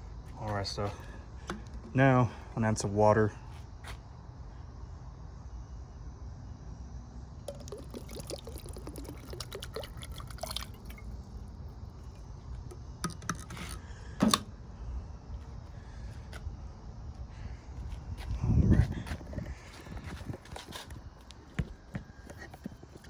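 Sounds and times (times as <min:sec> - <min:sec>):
water splashing into a pan: 0:07.5 - 0:11.2.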